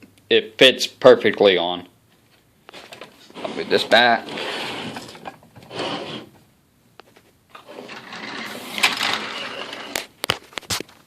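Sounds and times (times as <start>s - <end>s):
plastic model scraping across surface: 3.2s - 6.4s, 7.5s - 10.1s.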